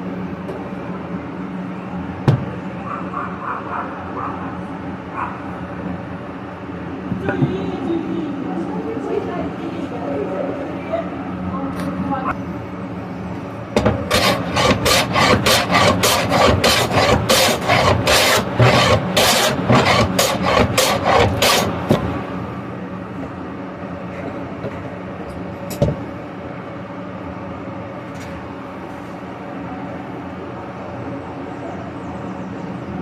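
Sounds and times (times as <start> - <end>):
steady low hum: 0.0 - 33.0
abrasive rubbing on wood: 13.8 - 21.9.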